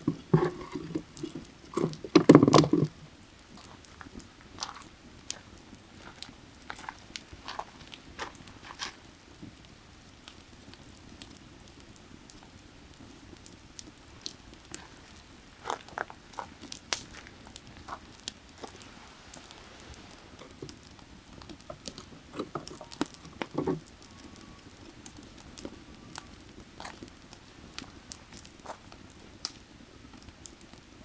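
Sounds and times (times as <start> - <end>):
firewood crackling and popping: 0.0 - 31.0
creek water rushing: 18.6 - 21.2.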